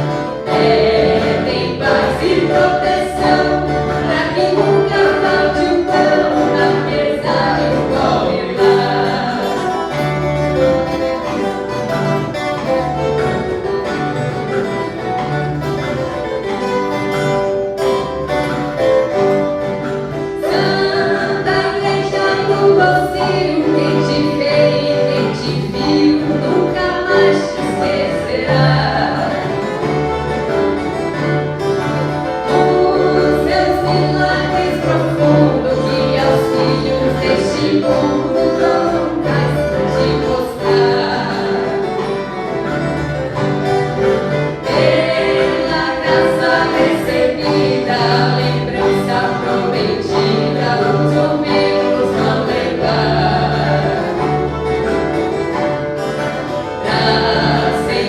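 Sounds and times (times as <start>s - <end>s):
group of voices singing: 0.0s - 10.7s, 20.1s - 30.6s, 31.8s - 42.9s, 44.3s - 58.0s
folk guitars ensemble playing: 0.0s - 58.0s.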